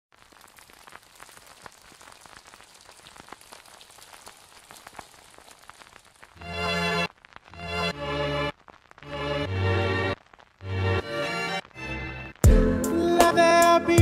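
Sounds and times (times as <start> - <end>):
rain falling: 0.1 - 13.6
music: 6.4 - 8.5, 9.1 - 14.0.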